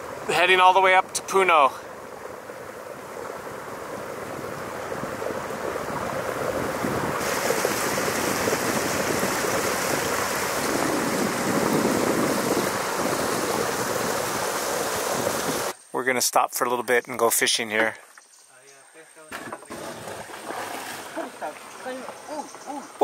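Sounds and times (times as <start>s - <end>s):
water rushing along boat hull: 0.0s - 15.8s, 19.4s - 23.0s
wind buffeting microphone: 1.8s - 15.7s
high hiss: 6.8s - 15.9s.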